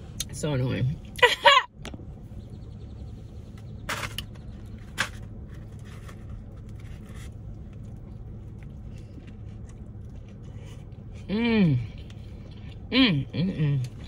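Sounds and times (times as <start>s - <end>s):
steady low hum: 0.0s - 14.0s
chewing and mouth noises: 6.4s - 14.0s.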